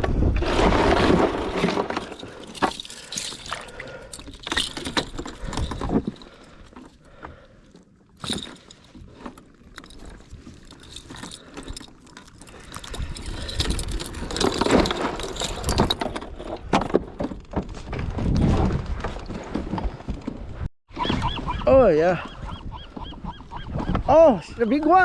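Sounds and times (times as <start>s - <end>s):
fishing gear clicking and handling: 1.3s - 17.5s.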